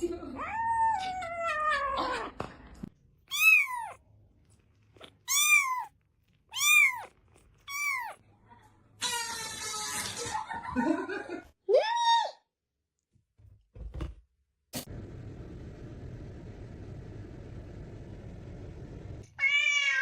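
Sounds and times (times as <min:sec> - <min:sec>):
cat meowing: 0:03.3 - 0:04.0, 0:05.2 - 0:05.9, 0:06.5 - 0:08.2, 0:19.3 - 0:20.0.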